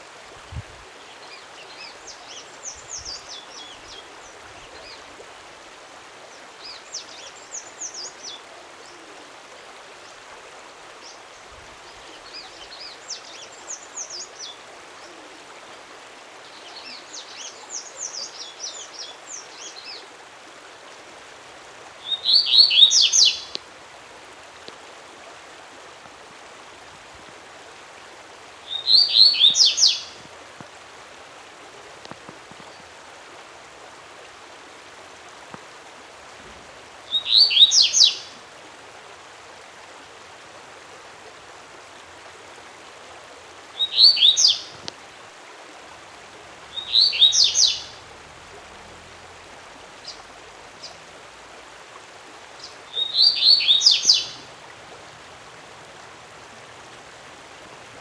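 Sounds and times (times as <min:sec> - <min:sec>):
songbird singing high notes: 0:22.0 - 0:23.6, 0:28.7 - 0:30.2, 0:37.1 - 0:38.2, 0:43.8 - 0:44.7, 0:46.7 - 0:48.0, 0:52.6 - 0:54.5.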